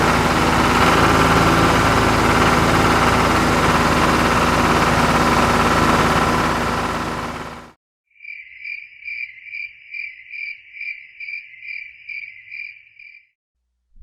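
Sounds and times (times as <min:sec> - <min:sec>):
engine running: 0:00.0 - 0:07.8
cricket chirping: 0:08.2 - 0:13.3.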